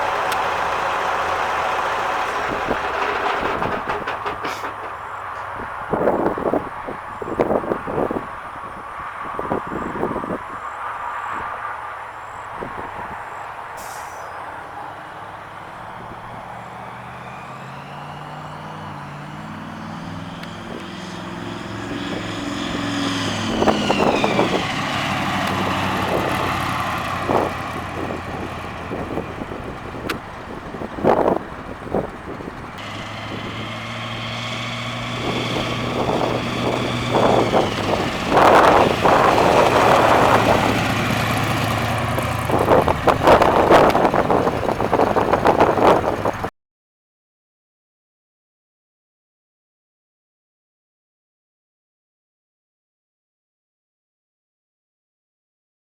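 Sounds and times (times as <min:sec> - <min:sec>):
loud sharp exhaust cracks: 0:00.0 - 0:06.6, 0:16.8 - 0:46.5
car engine accelerating: 0:00.0 - 0:08.3, 0:14.4 - 0:46.5.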